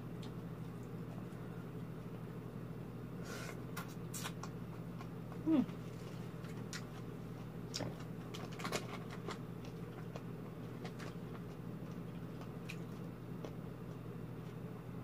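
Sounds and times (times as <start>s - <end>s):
steady low hum: 0.0s - 15.0s
person chewing food: 3.4s - 14.6s.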